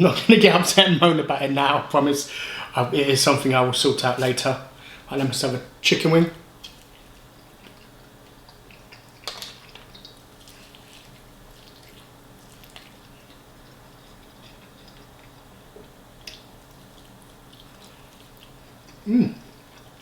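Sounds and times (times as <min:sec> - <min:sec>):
wet chewing and smacking: 0:06.6 - 0:20.0.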